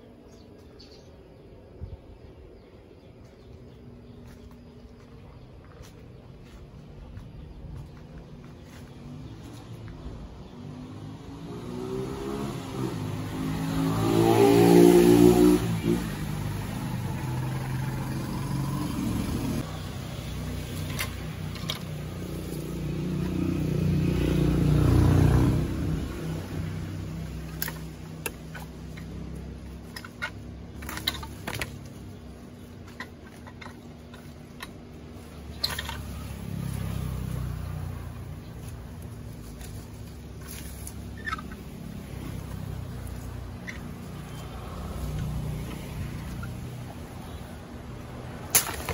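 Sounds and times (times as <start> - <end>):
vehicle engine passing by: 6.4 - 33.0, 34.1 - 48.5.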